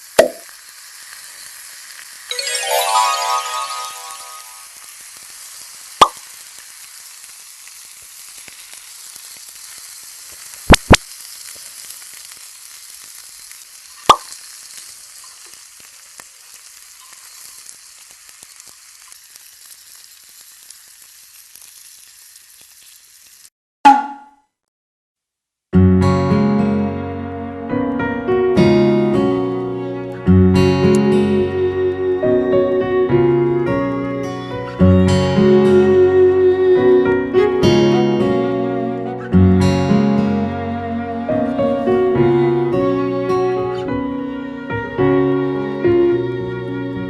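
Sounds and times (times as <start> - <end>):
campfire sizzling hiss: 0.0 - 23.5, 29.4 - 47.0
fire sharp pops: 5.9 - 19.9.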